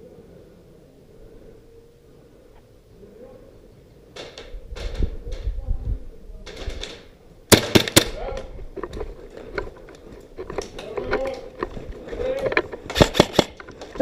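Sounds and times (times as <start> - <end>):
airsoft gun shots: 7.5 - 8.4, 13.0 - 13.6
scuffing and rustling movement: 8.4 - 14.0.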